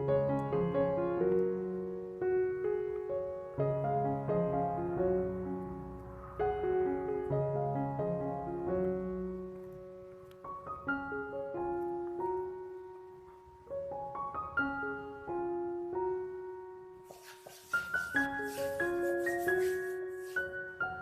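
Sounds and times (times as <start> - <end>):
gentle piano music: 0.0 - 21.0
hiss: 17.1 - 20.6.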